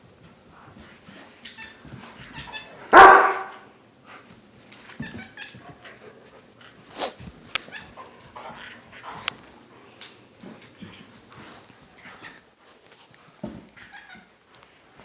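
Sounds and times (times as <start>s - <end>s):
dog barking: 2.9s - 3.7s.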